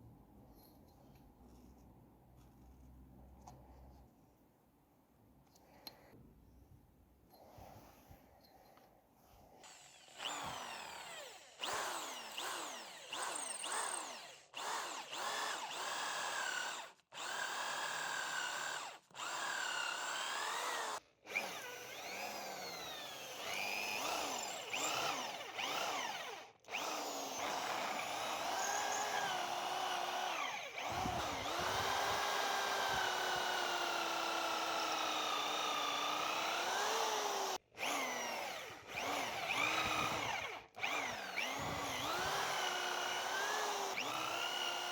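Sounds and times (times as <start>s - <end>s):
electric power tool motor: 9.6s - 44.9s.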